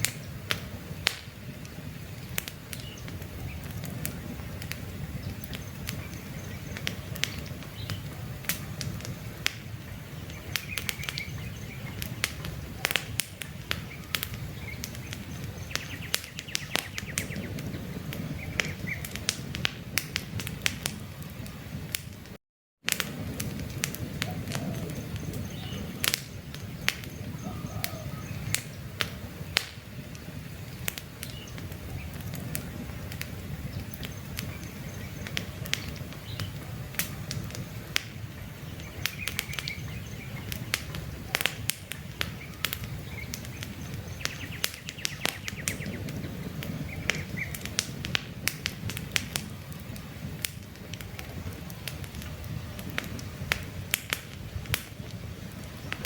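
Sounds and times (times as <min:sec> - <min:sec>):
campfire crackling: 0:00.0 - 0:56.0
bird chirps: 0:02.2 - 0:04.5, 0:05.1 - 0:08.8, 0:09.6 - 0:19.1, 0:24.2 - 0:28.8, 0:38.4 - 0:40.8, 0:42.3 - 0:46.1.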